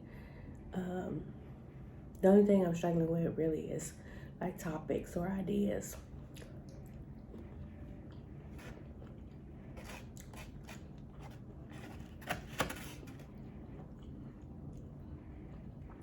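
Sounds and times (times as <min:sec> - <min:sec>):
person eating close up: 0:06.0 - 0:12.2, 0:13.1 - 0:16.0.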